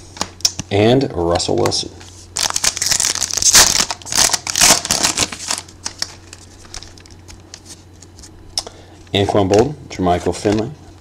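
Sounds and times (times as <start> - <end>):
wrapper crinkling and tearing: 2.4 - 7.4.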